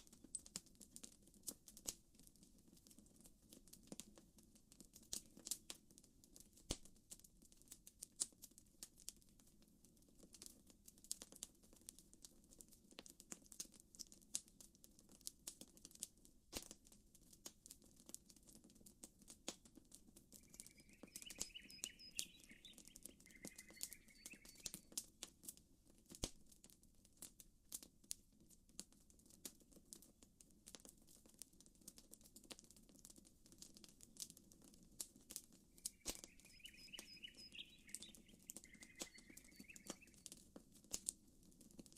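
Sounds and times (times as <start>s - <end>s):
campfire wood crackling: 0.0s - 41.9s
bird chirping: 20.4s - 24.9s, 35.8s - 40.3s.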